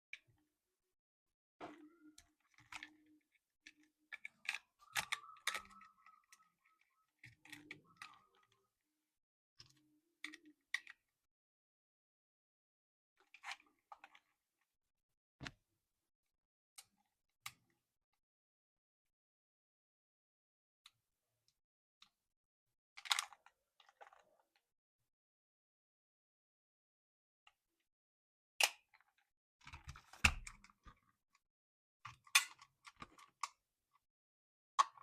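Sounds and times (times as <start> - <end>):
plastic toy parts clicking: 2.0 - 6.4, 23.0 - 24.2, 32.1 - 33.6.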